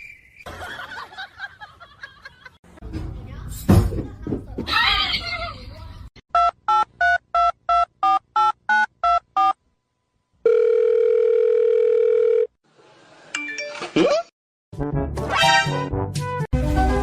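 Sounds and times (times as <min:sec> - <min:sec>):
long steady dial tone: 0:10.4 - 0:12.6.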